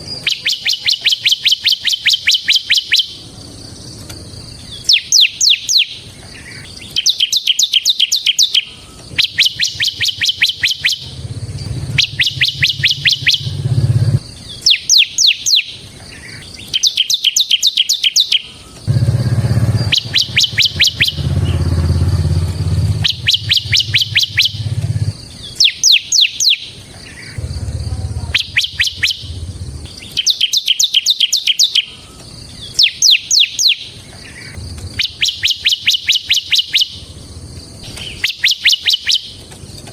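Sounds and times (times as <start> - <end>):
bird singing trilled phrase: 0.0 - 3.2, 4.4 - 37.2, 37.8 - 39.4
low rumble: 11.0 - 14.2, 18.9 - 25.2, 27.4 - 30.0, 34.6 - 35.0.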